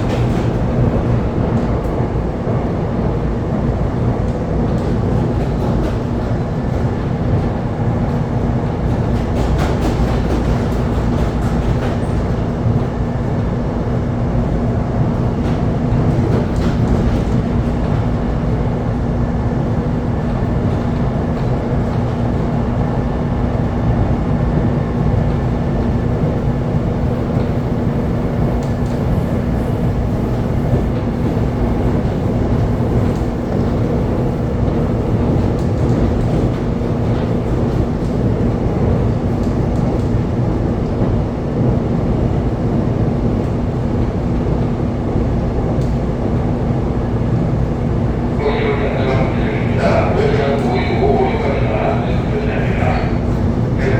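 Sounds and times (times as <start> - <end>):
train wheels rumbling on rail: 0.0 - 53.9
constant low hum: 48.0 - 53.9.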